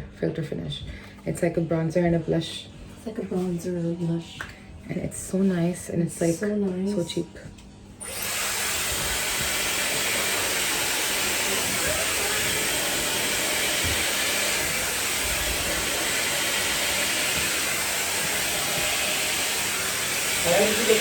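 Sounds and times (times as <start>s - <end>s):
hair dryer blowing: 8.0s - 21.0s.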